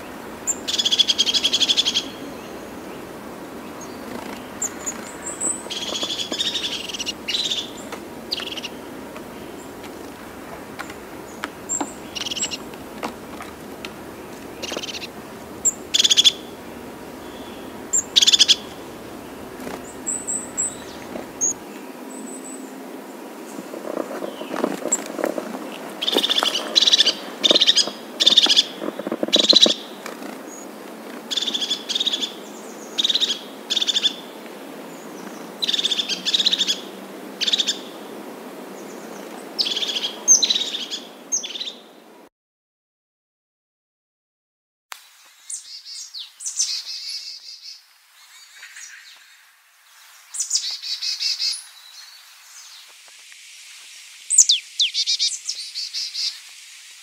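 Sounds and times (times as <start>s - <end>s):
birds chirping: 0.0s - 41.9s, 54.3s - 56.4s
background hiss: 0.0s - 42.3s, 45.0s - 57.0s.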